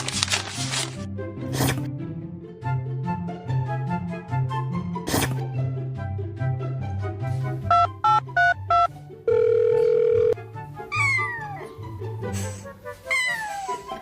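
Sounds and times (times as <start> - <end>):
short electronic beeps: 7.7 - 8.9.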